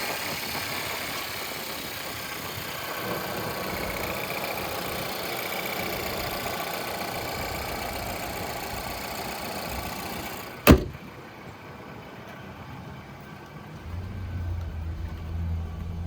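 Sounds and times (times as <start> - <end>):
car engine idling: 0.1 - 11.1, 13.7 - 16.0
sharp thump: 10.6 - 11.0.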